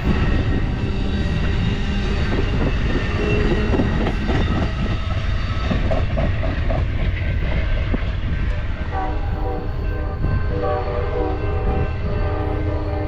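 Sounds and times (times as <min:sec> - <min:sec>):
wheels clacking over rail joints: 0:00.0 - 0:09.0
train rumbling: 0:00.0 - 0:13.0.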